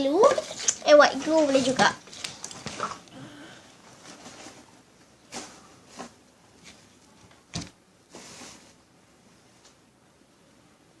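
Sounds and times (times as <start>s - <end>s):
soft rustle: 3.8s - 7.4s, 8.1s - 9.8s.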